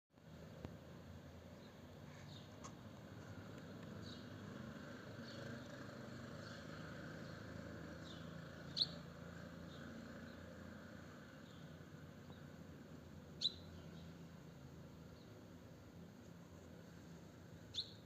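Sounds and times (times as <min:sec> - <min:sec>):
high bird chirps: 0:13.4 - 0:14.1, 0:17.7 - 0:18.0.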